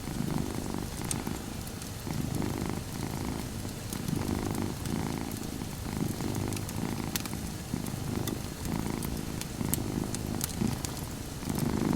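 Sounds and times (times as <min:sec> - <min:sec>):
cat purring: 0:00.0 - 0:01.4, 0:02.0 - 0:11.9
wood fire crackling: 0:02.9 - 0:11.6.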